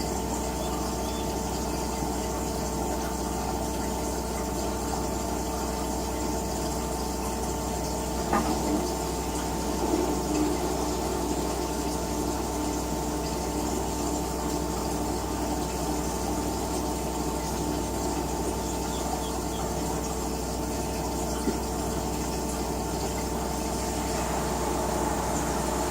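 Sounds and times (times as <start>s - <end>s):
washing machine running: 0.0s - 25.9s.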